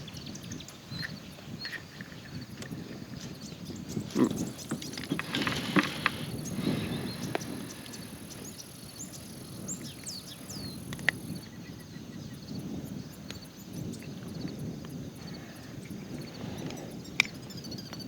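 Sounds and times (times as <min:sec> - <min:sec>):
wind rumbling on microphone: 0:00.0 - 0:18.0
falling bird chirps: 0:04.0 - 0:11.2.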